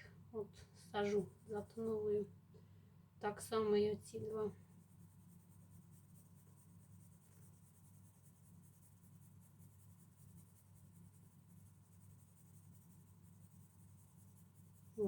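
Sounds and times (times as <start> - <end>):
pencil scratching on paper: 4.1 - 15.0.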